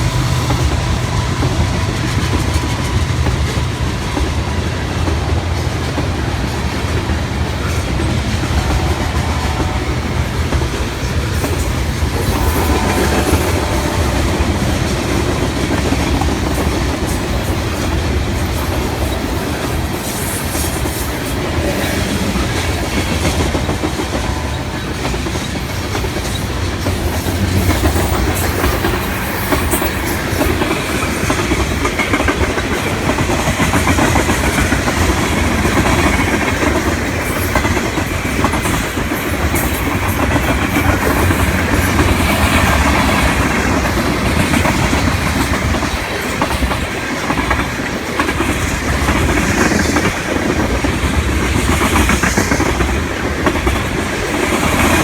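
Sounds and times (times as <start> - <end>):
freight train wheels clacking: 0.0 - 55.0.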